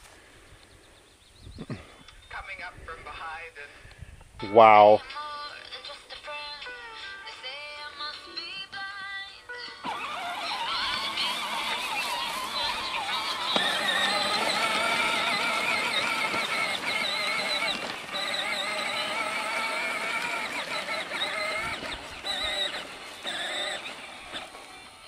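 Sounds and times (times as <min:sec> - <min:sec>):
toy tractor electric motor whining: 0:09.6 - 0:25.0.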